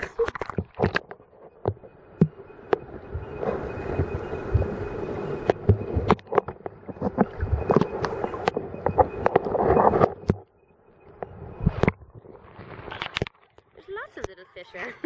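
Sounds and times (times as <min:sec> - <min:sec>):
water splashing and sloshing: 0:00.0 - 0:13.8
sharp knocks and clicks: 0:00.3 - 0:03.0, 0:05.4 - 0:12.1.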